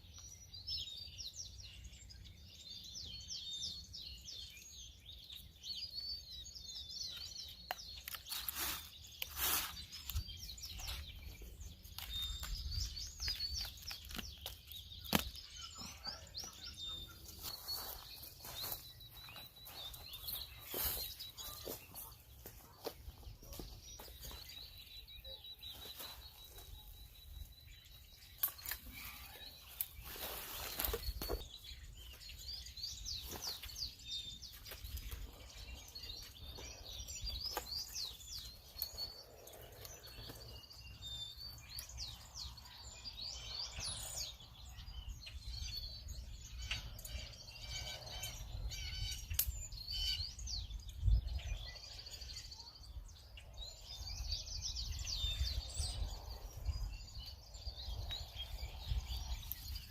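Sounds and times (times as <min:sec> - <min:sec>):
small birds chirping and singing: 0:00.0 - 0:59.9.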